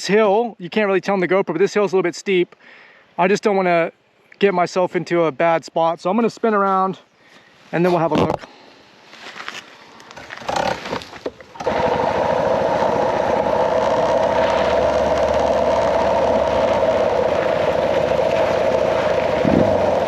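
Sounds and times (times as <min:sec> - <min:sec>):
motorcycle engine running: 0:11.5 - 0:20.0.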